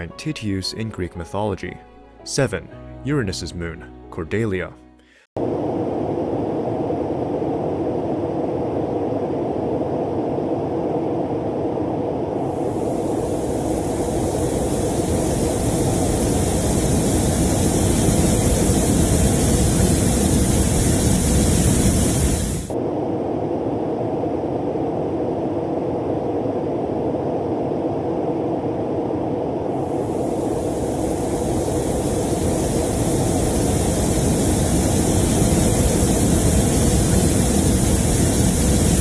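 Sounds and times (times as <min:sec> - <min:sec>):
noisy low drone: 0:05.4 - 0:39.0
loud hiss: 0:12.4 - 0:22.8, 0:29.8 - 0:39.0.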